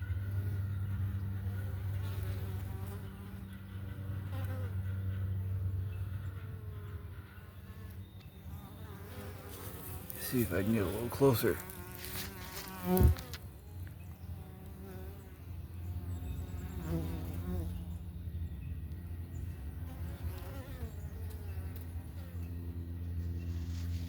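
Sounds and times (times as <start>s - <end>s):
bee flying past: 0.0s - 5.3s, 5.9s - 18.0s, 19.6s - 24.0s
bees buzzing: 6.0s - 18.0s
short thump: 12.9s - 13.4s.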